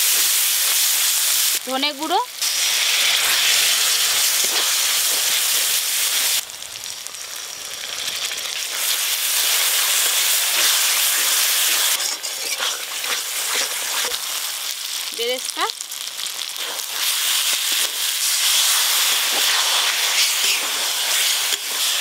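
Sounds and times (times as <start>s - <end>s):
spices sizzling in hot oil: 0.0s - 22.0s
metal spatula stirring: 10.5s - 14.2s.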